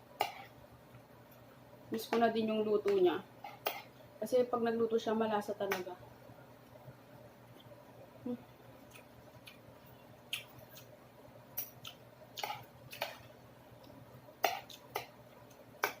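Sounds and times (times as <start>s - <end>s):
faint room hum: 0.0s - 16.0s
wet chewing sounds: 8.8s - 11.0s, 11.6s - 13.2s.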